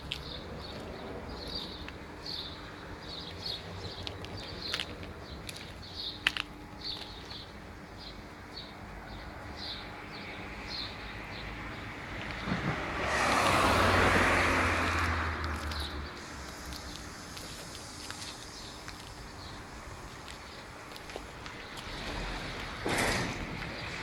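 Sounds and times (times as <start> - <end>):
truck driving past: 10.1 - 18.7, 21.6 - 24.0.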